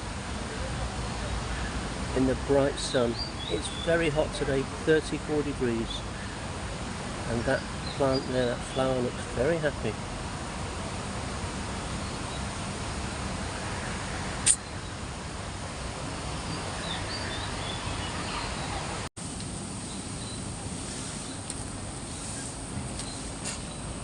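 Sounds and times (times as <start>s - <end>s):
sharp click: 14.4s - 14.6s.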